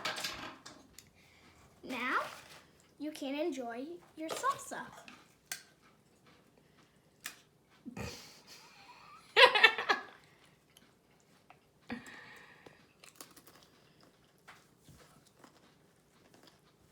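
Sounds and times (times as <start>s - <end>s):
child giggling: 7.9s - 10.2s
chips crunching and chewing: 10.7s - 16.9s.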